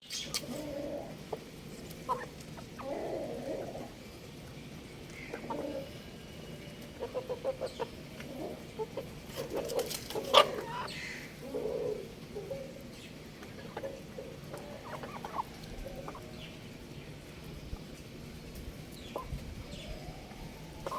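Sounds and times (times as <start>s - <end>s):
rooster clucking: 0.3s - 3.9s, 13.4s - 16.3s.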